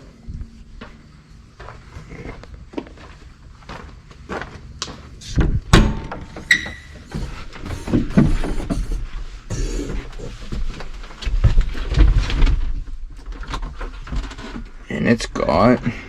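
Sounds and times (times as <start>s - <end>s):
door banging: 5.8s - 9.1s
door knocks and clanks: 5.8s - 9.1s
door squeak: 6.3s - 9.1s.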